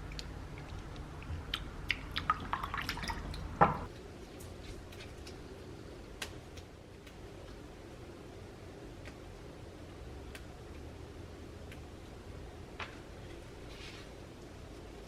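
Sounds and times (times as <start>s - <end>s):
water dripping and splashing: 0.0s - 3.9s
steady low hum: 0.0s - 15.0s.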